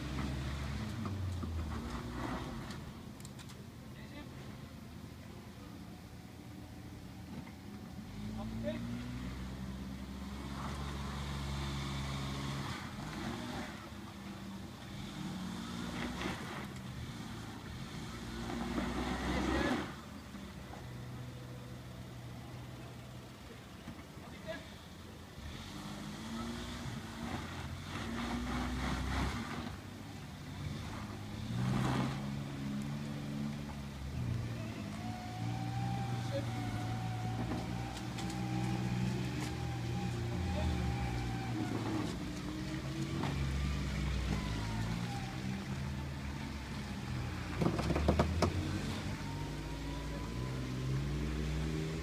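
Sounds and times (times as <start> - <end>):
small engine pulling hard: 8.1 - 20.1, 25.4 - 52.0.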